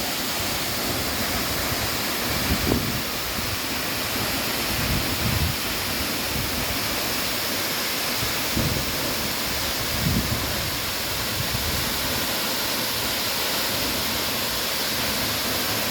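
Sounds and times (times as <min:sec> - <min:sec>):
waterfall roaring: 0:00.0 - 0:15.9
wind bumps on microphone: 0:02.4 - 0:03.5, 0:08.5 - 0:09.0, 0:09.8 - 0:10.8.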